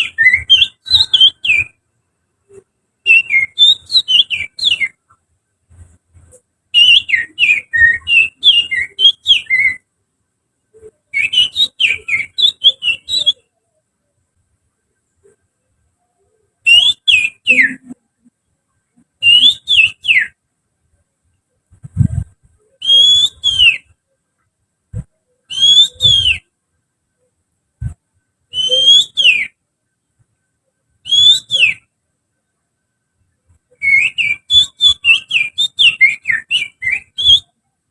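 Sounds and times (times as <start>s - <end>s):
soft low thumps: 21.7s - 22.6s
person finger whistling: 22.8s - 23.9s, 25.0s - 26.4s, 28.6s - 29.5s, 31.1s - 31.8s, 33.8s - 37.5s.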